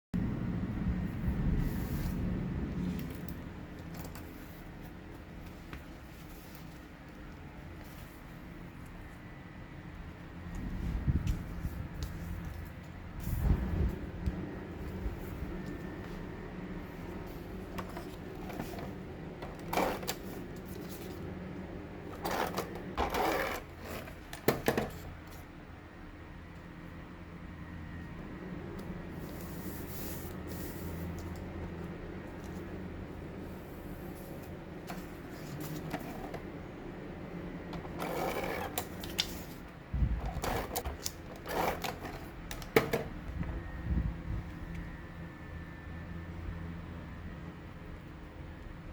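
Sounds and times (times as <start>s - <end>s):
steady low hum: 0.1s - 48.9s
paper rustling and scraping: 1.5s - 8.6s, 16.9s - 21.3s, 22.0s - 25.4s, 33.5s - 36.5s, 37.7s - 42.8s
paper rustling: 34.1s - 36.5s, 37.8s - 42.7s.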